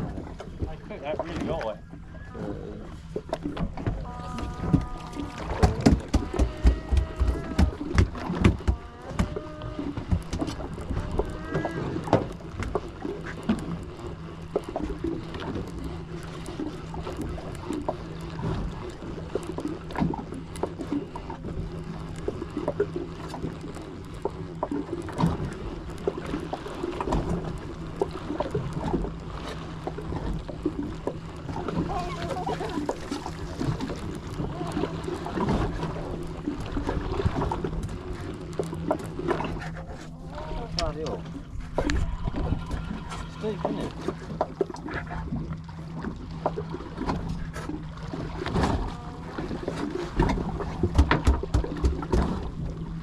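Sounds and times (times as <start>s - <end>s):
boat engine humming: 0.0s - 53.0s
water washing: 0.0s - 53.0s.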